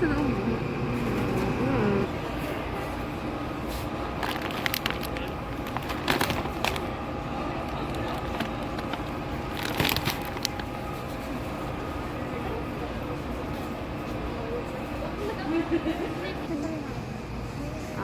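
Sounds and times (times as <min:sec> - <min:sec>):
low background hum: 0:00.0 - 0:18.0
plastic packaging crinkling: 0:04.1 - 0:07.0, 0:07.7 - 0:10.7.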